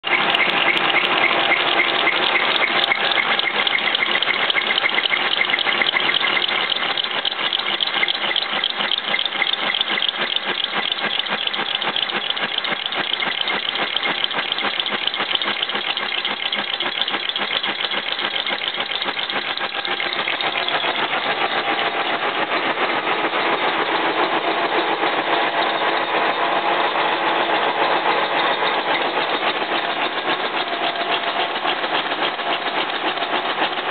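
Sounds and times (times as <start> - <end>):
boring machine cutting metal: 0.0 - 26.4.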